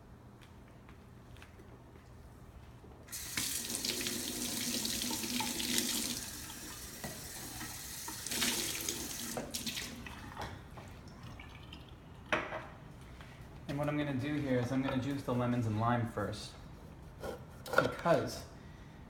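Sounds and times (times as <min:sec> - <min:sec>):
tap running into sink: 0:06.9 - 0:09.8.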